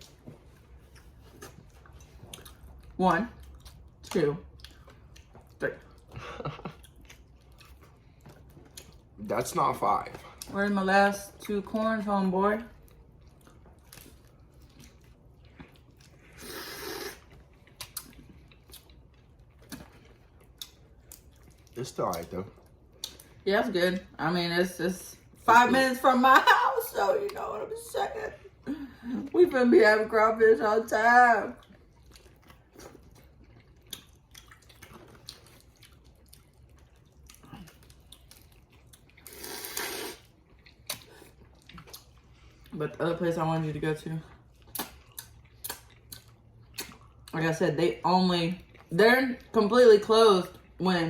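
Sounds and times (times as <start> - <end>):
chewing with wet clicks: 0.0 - 16.4, 17.0 - 24.2, 31.5 - 50.8
loud wet slurp: 16.3 - 17.3, 39.2 - 40.3.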